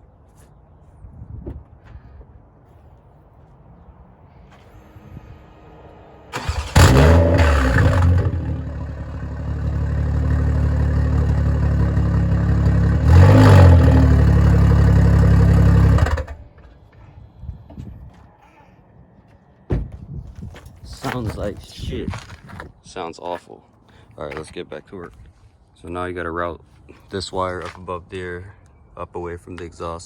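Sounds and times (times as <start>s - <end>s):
open-piped car engine revving: 4.7s - 16.4s.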